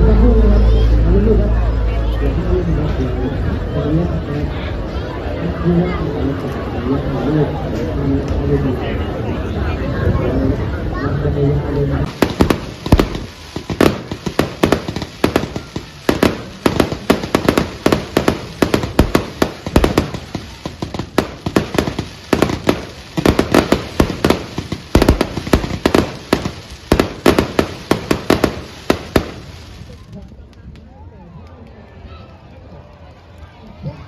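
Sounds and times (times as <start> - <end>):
fireworks bangs and crackles: 12.0 - 31.0.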